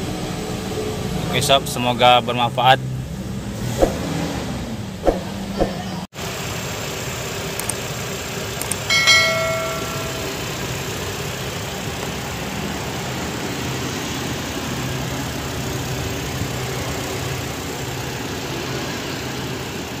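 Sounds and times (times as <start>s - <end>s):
petrol engine idling: 5.9s - 20.0s
short metallic ring: 8.8s - 10.8s.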